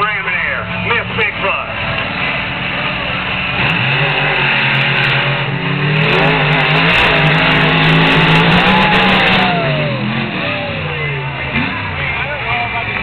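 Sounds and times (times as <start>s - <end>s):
monster truck engines at full throttle: 0.0s - 13.0s
falling whine: 4.0s - 11.3s.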